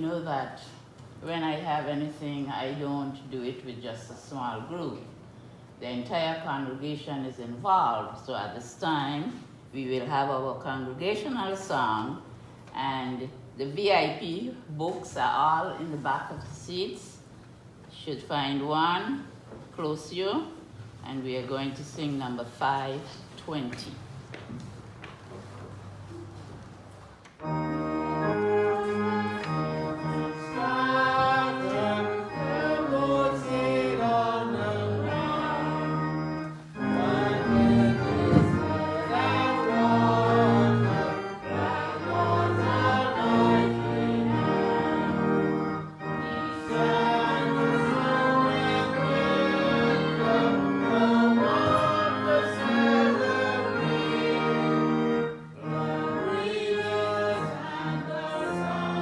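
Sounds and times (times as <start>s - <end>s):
accompanying music: 27.4s - 59.0s
congregation singing a hymn: 27.4s - 59.0s.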